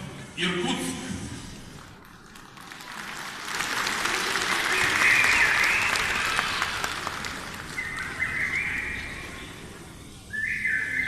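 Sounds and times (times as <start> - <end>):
audience applauding: 1.8 - 9.7
high whistle: 4.8 - 6.3, 7.8 - 9.2, 10.3 - 11.0.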